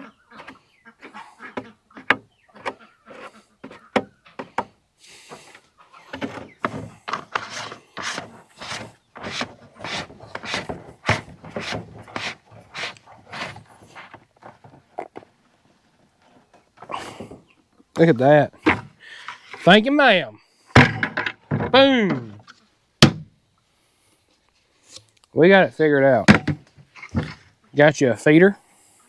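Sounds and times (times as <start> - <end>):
scraping plastic bucket: 5.2 - 15.1, 26.3 - 27.5.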